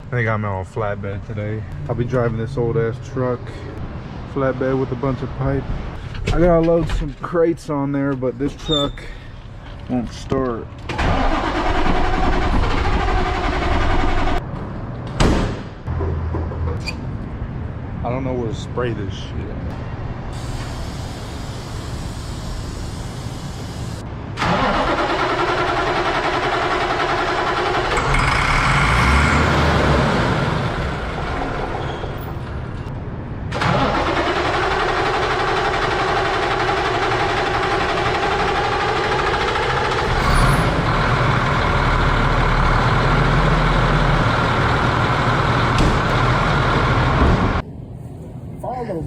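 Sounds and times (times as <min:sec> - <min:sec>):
truck engine cranking: 0:10.8 - 0:14.4, 0:24.4 - 0:32.2, 0:33.5 - 0:47.6
truck engine running: 0:11.1 - 0:14.4, 0:20.9 - 0:31.8, 0:33.5 - 0:47.6.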